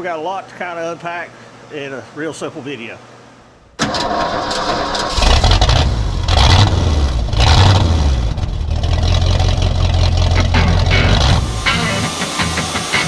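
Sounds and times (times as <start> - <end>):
engine starting and running: 3.8 - 13.0.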